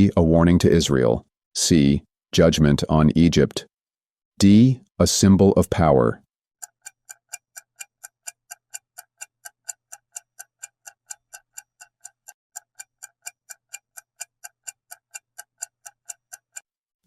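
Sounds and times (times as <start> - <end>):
clock-like ticking: 6.6 - 16.8.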